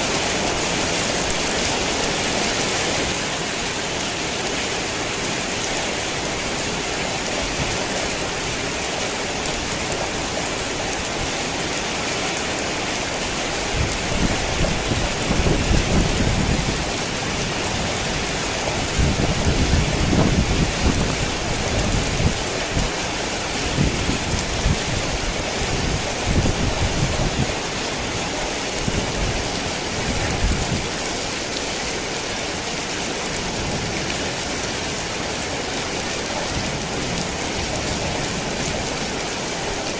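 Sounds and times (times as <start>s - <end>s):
heavy rain falling: 0.0s - 39.9s
thunder rumbling: 13.8s - 23.0s.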